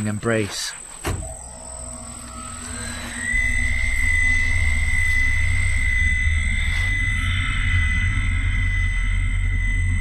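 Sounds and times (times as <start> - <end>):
low rumble drone: 1.1 - 10.0
thin high steady tone: 1.3 - 10.0.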